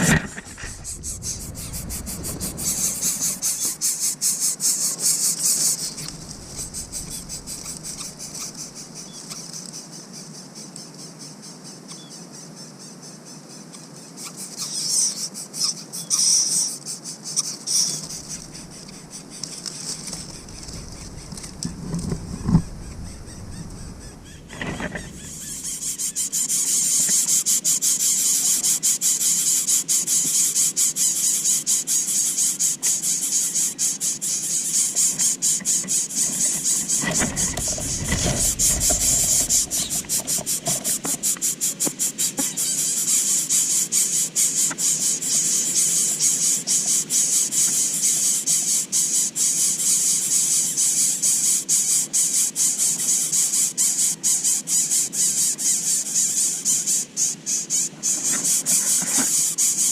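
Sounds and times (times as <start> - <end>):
rustling: 0.0 - 4.1, 4.8 - 9.1, 17.8 - 26.0, 36.3 - 41.4
bird nestlings squealing: 0.0 - 9.8, 14.2 - 29.0, 31.0 - 59.9.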